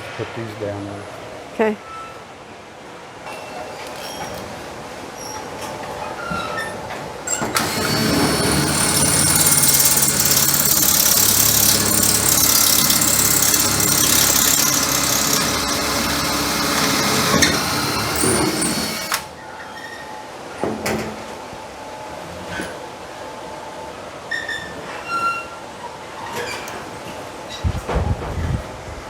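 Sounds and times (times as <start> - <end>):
power drill running: 7.3 - 19.3.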